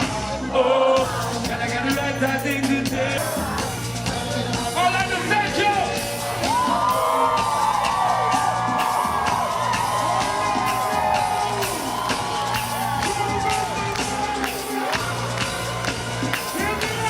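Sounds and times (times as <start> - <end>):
steady bass beat: 0.0 - 17.0
crowd whooping: 5.9 - 17.0.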